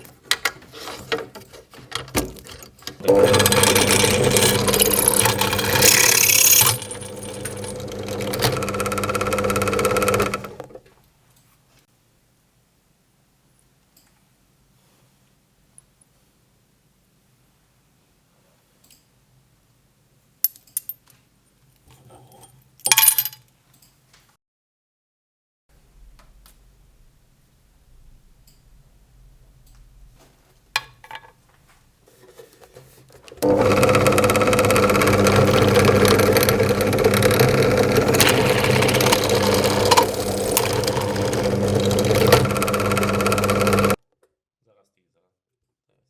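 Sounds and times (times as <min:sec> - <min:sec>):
drill press motor hum: 0:03.0 - 0:10.8, 0:33.4 - 0:44.0.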